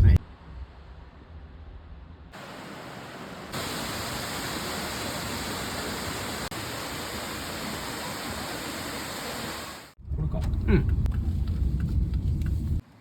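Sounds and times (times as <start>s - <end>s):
waterfall rushing: 2.4s - 10.0s.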